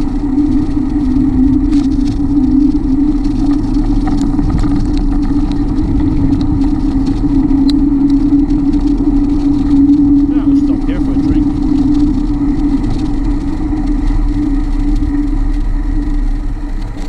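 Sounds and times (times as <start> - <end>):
bicycle riding hum: 0.0 - 17.0
wind rumble on microphone: 0.0 - 17.0
faint ticks: 1.6 - 17.0.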